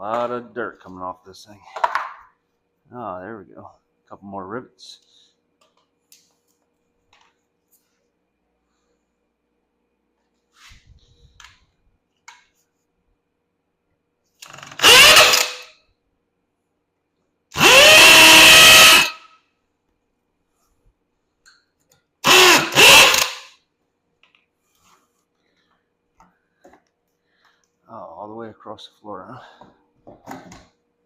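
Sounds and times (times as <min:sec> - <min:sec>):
electric drill whining: 0:14.4 - 0:15.7, 0:17.6 - 0:19.3, 0:22.2 - 0:23.5.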